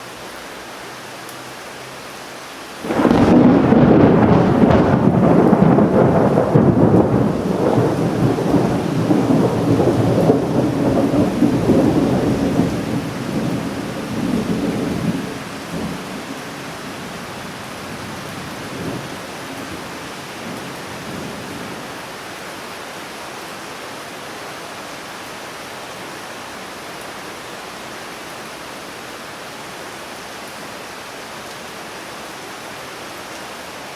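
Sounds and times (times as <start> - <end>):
steady rain hiss: 0.0 - 33.9
thunderclap rumbling: 2.8 - 21.8
faint distant thunder rumbles: 2.8 - 22.0.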